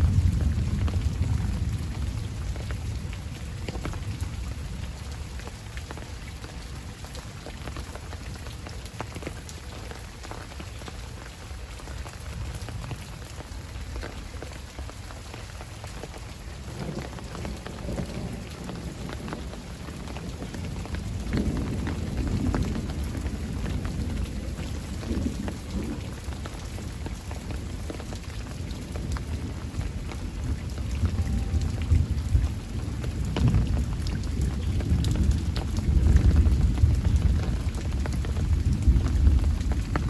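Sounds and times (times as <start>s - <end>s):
distant thunder rumbling: 0.0s - 4.8s, 16.6s - 40.0s
heavy rain: 0.0s - 40.0s
raindrops ticking close by: 0.0s - 40.0s.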